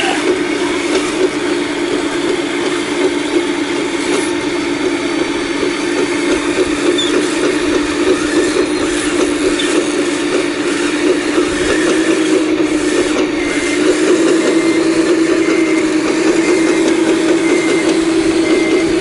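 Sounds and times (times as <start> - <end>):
excavator running under load: 0.0 - 19.0
high metal squeaks: 6.8 - 10.0.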